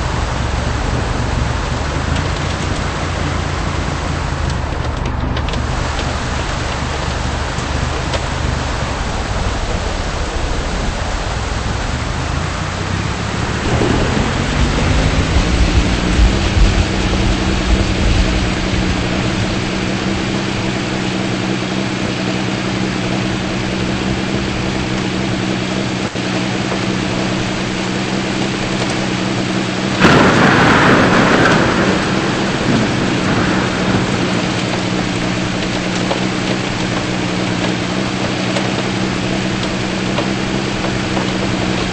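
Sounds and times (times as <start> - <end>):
car engine running: 0.0 - 41.9
steady rain: 0.0 - 41.9
sudden rush of noise: 5.5 - 20.2, 30.0 - 36.3.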